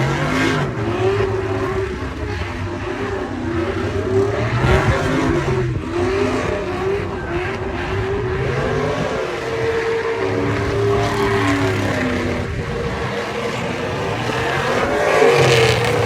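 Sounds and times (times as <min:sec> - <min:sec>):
heavy rumble: 0:00.0 - 0:16.0
truck engines revving: 0:00.0 - 0:16.0.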